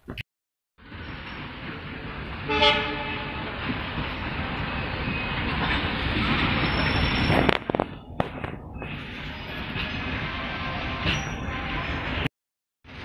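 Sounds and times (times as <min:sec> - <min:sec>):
train rumbling past: 0:00.8 - 0:12.3
train horn blast: 0:02.5 - 0:03.6.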